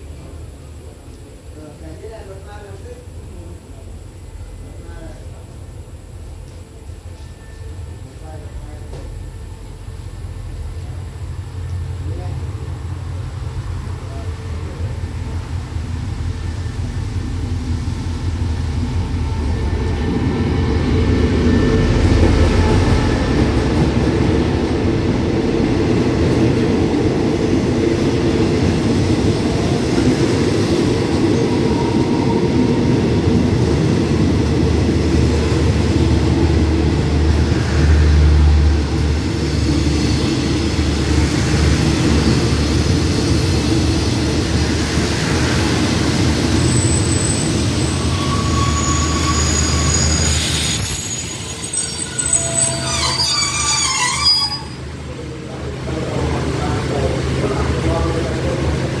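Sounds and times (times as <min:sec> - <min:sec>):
diesel locomotive passing: 0:02.0 - 0:59.0
high-pitched brake squeals: 0:07.1 - 0:08.1, 0:46.6 - 0:54.9.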